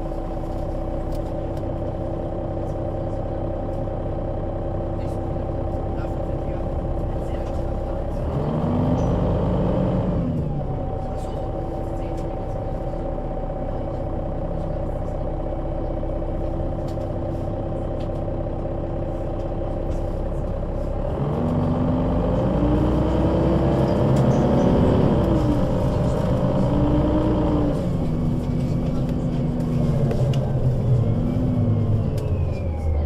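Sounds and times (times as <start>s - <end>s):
bus diesel engine: 0.0s - 33.0s.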